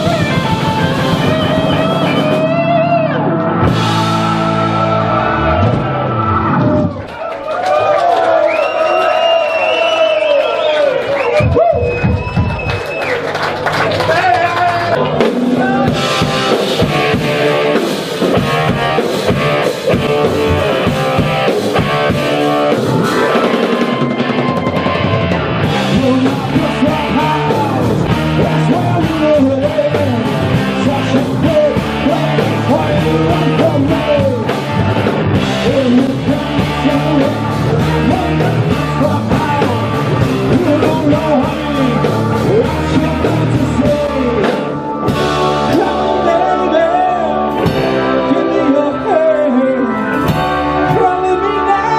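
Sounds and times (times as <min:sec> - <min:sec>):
drum kit beat: 0:00.0 - 0:06.1, 0:14.8 - 0:48.3
live blues-rock band: 0:00.0 - 0:07.1, 0:11.2 - 0:51.9
person singing: 0:25.6 - 0:34.8, 0:35.4 - 0:51.9.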